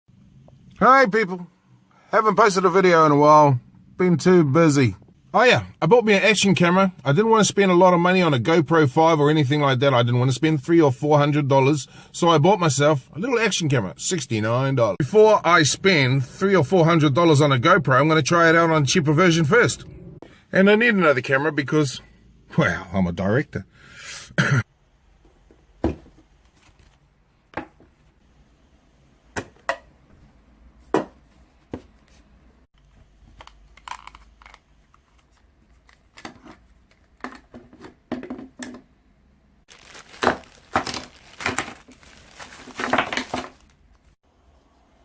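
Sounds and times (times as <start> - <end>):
packaging clicks and knocks: 39.7 - 43.7
packaging crinkling: 39.7 - 44.2.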